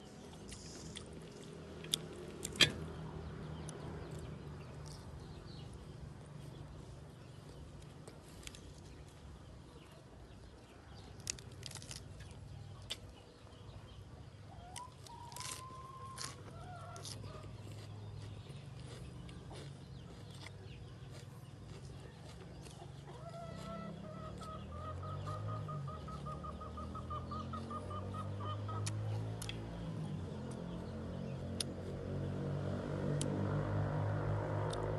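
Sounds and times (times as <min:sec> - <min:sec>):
biting and chewing crunches: 0:00.2 - 0:02.9, 0:03.6 - 0:05.8, 0:07.3 - 0:09.3, 0:10.9 - 0:13.2, 0:14.7 - 0:25.4
drawn-out rising animal call: 0:23.0 - 0:29.7.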